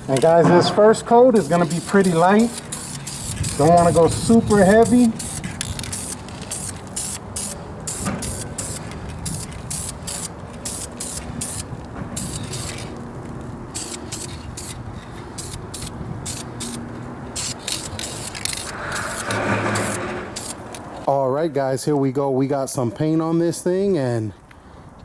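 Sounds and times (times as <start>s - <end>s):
spray paint can hissing: 1.4s - 12.9s, 13.7s - 20.8s.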